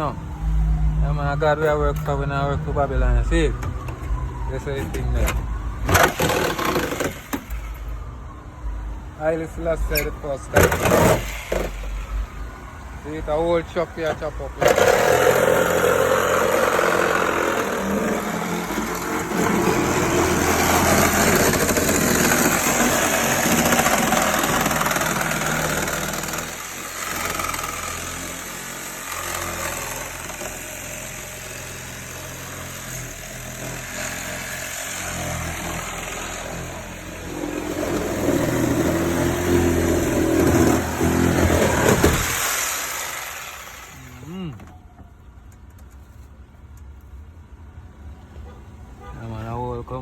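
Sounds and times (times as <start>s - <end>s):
heavy machinery engine: 13.6s - 44.8s.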